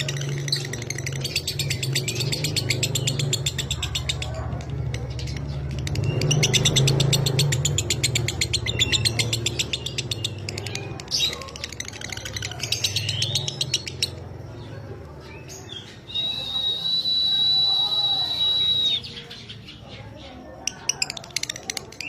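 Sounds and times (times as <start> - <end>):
bird chattering trill: 0.0 - 4.4, 5.1 - 14.3.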